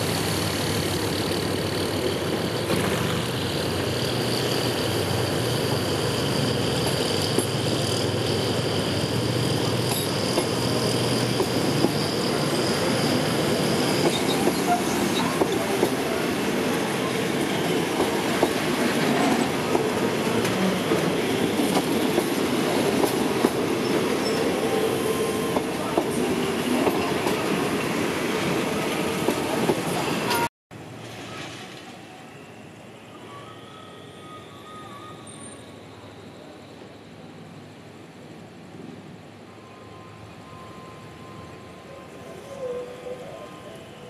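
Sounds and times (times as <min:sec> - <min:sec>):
steady high squeal: 0:03.3 - 0:22.1, 0:23.7 - 0:26.8, 0:31.2 - 0:37.4.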